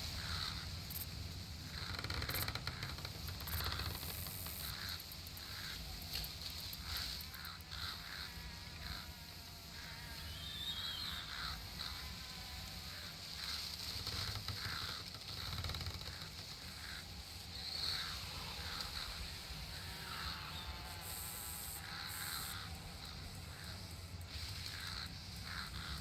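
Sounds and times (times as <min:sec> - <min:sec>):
high insect drone: 0:00.0 - 0:26.0
bird chirps: 0:10.2 - 0:11.5.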